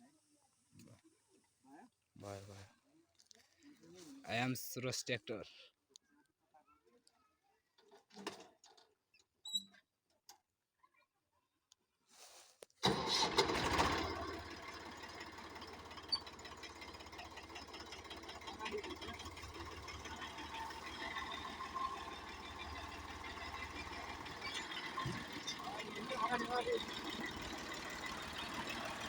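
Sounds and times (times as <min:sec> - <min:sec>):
tractor engine starting and chugging: 0:12.8 - 0:29.0.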